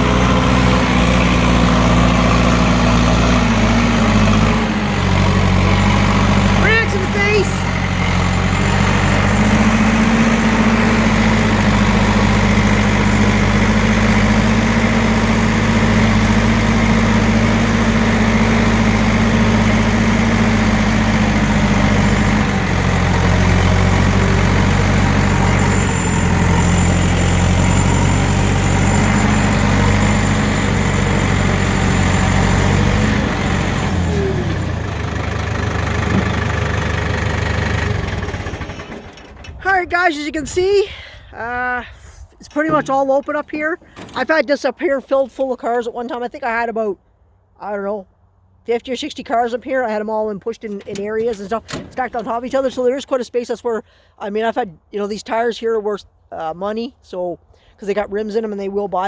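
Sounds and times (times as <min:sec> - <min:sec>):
tractor engine running: 0:00.0 - 0:46.6, 0:48.2 - 0:53.8.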